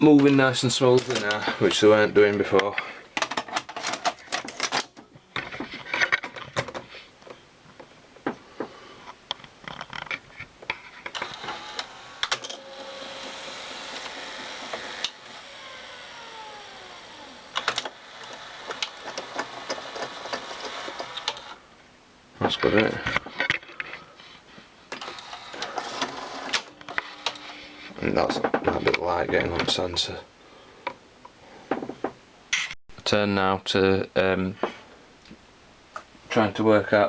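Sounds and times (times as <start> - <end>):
tape mechanism clicks and clatter: 0.2 - 5.1, 9.7 - 21.6, 24.9 - 27.5
motor whir: 11.1 - 21.6, 25.0 - 27.6.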